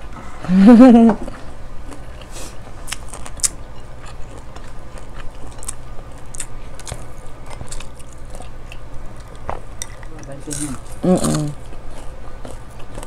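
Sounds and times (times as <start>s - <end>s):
low steady hum: 0.0s - 13.0s
chewing mouth sounds: 1.4s - 13.0s.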